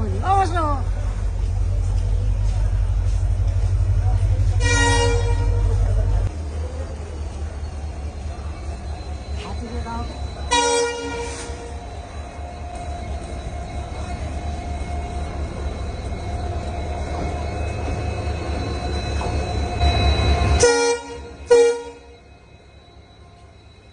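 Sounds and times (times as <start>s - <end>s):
moving vehicle rumble: 0.0s - 23.9s
horn blasts: 4.5s - 6.0s, 10.5s - 11.8s, 20.0s - 22.2s.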